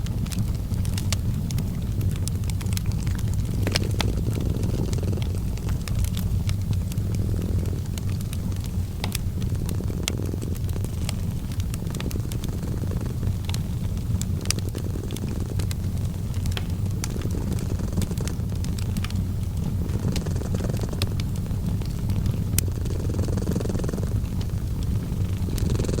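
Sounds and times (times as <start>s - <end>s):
cat purring: 0.0s - 26.0s
wood fire crackling: 0.0s - 26.0s.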